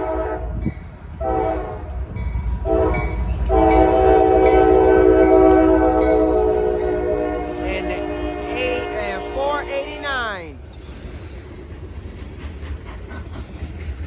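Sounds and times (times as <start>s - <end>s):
locomotive air horn blasts: 0.0s - 0.6s, 1.2s - 1.8s, 2.6s - 10.7s
passing train rumble: 0.0s - 14.0s.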